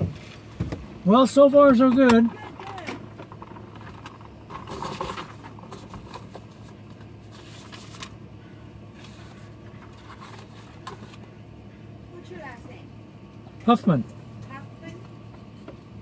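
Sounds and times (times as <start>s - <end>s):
engine idling low hum: 0.0s - 16.0s
handling rustle: 2.3s - 8.2s, 8.9s - 11.4s.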